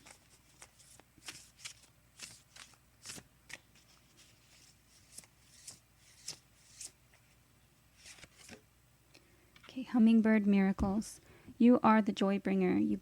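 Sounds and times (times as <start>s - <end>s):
cards being shuffled: 0.0s - 8.6s.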